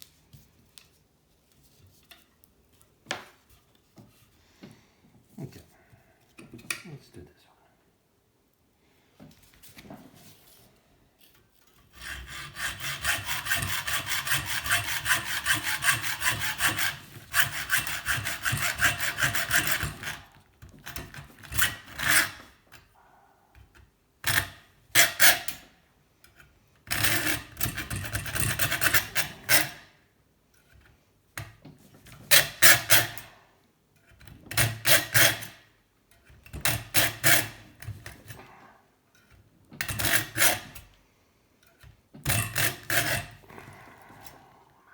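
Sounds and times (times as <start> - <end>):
hand saw cutting metal: 11.8 - 22.6, 24.2 - 25.6, 26.9 - 30.0, 32.3 - 33.3, 34.1 - 38.4, 39.2 - 40.9, 42.2 - 43.5.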